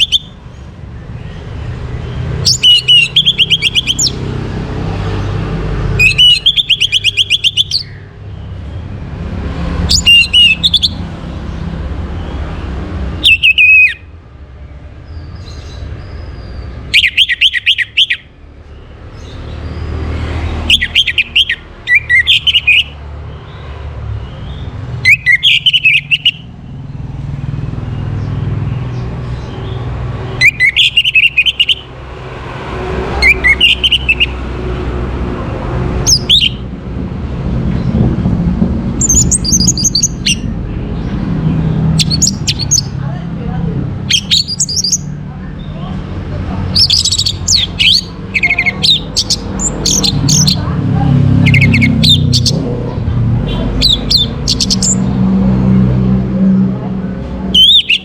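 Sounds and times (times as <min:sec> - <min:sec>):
thrush singing warbling phrases: 0:00.0 - 0:00.3, 0:02.4 - 0:07.9, 0:09.9 - 0:11.0, 0:13.2 - 0:14.0, 0:16.9 - 0:18.3, 0:20.5 - 0:23.0, 0:25.0 - 0:26.5, 0:30.2 - 0:34.8, 0:35.9 - 0:36.6, 0:39.0 - 0:40.5, 0:44.0 - 0:55.3, 0:57.5 - 0:58.0.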